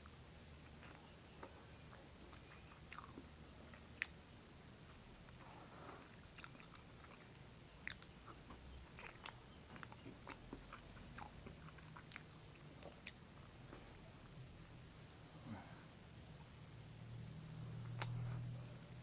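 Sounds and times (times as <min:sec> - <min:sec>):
chewing and biting sandwich: 0:00.8 - 0:04.2, 0:05.3 - 0:14.0.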